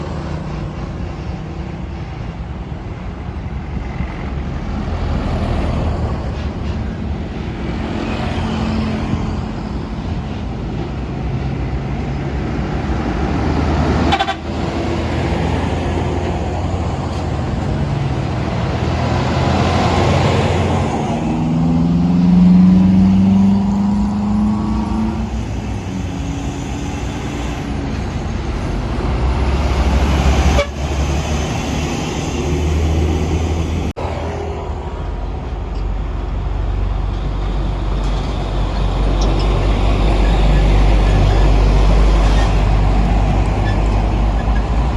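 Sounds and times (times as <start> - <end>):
traffic rumble: 0.0 - 44.9
truck engines passing: 0.0 - 44.9
truck horn: 14.0 - 14.9, 30.1 - 31.4.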